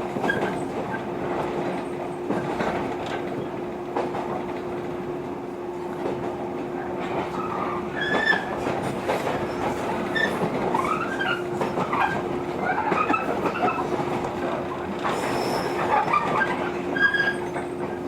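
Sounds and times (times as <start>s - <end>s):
train running hum and rumble: 0.0s - 18.0s
wheels squealing: 7.3s - 8.6s, 9.4s - 14.0s, 15.1s - 17.6s.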